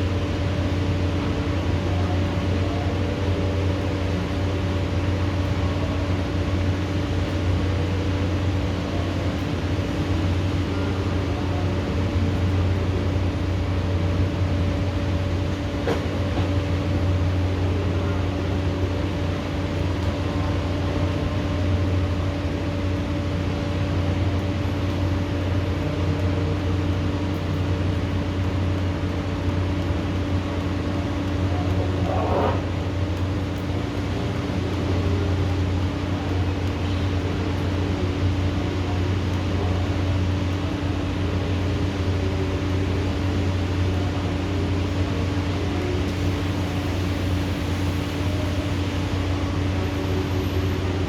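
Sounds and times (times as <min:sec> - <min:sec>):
steady mechanical hum: 0:00.0 - 0:51.0.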